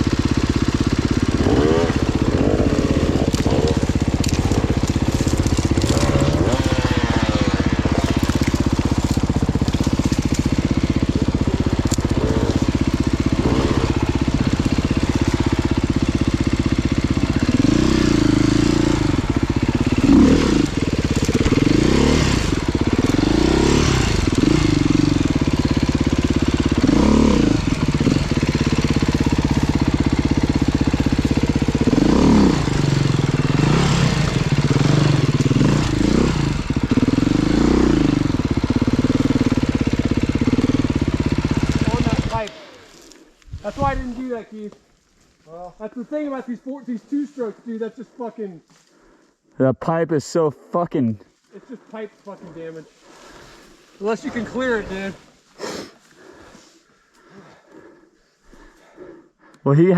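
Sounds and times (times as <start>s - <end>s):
dirt bike engine revving: 0.0s - 44.3s, 52.5s - 55.2s.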